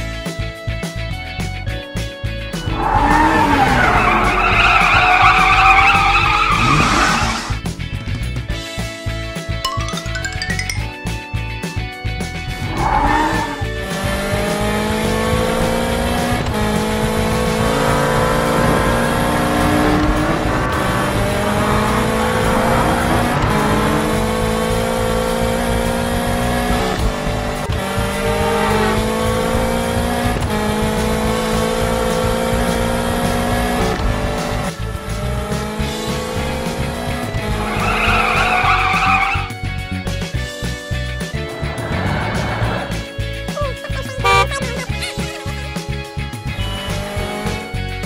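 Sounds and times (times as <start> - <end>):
background music: 0.0 - 48.0
cartoon race car engine revving: 2.6 - 7.6, 12.6 - 39.5, 41.5 - 45.8, 46.6 - 47.8.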